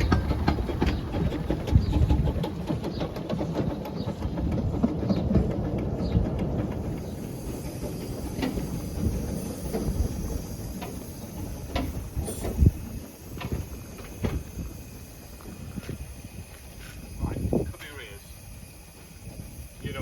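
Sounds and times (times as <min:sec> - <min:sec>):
steam locomotive rumbling and clanking: 0:00.0 - 0:20.0
thin steam hiss: 0:06.9 - 0:20.0.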